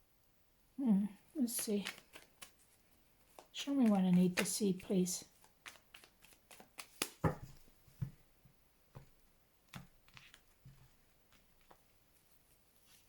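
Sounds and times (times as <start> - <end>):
cards being handled: 1.4 - 8.2, 9.7 - 13.0.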